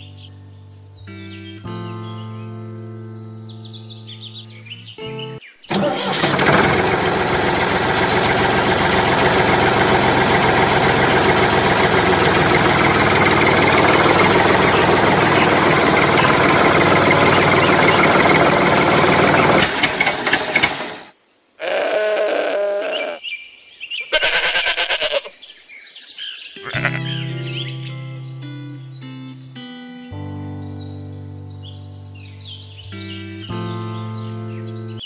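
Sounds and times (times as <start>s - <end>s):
engine knocks: 5.7s - 21.1s
tractor engine running: 5.7s - 21.1s.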